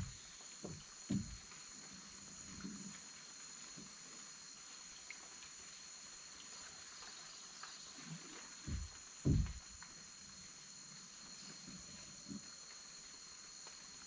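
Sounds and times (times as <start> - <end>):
faint water trickling: 0.0 - 14.0
insects droning: 0.0 - 14.0
low thumps: 8.7 - 9.8.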